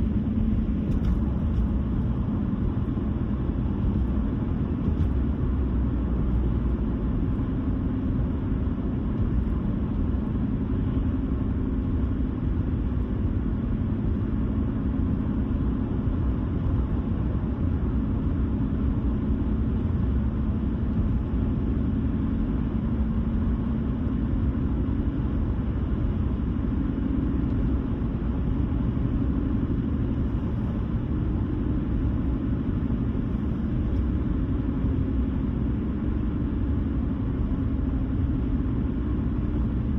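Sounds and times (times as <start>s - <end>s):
tyre and road noise: 0.0s - 14.4s
low engine hum: 0.0s - 39.9s.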